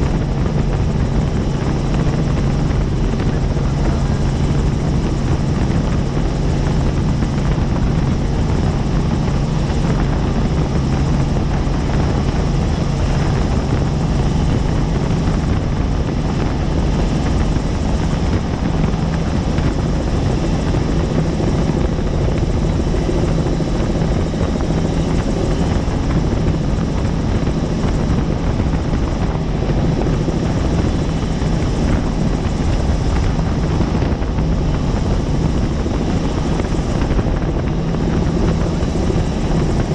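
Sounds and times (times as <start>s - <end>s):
helicopter rotor and turbine: 0.0s - 39.9s.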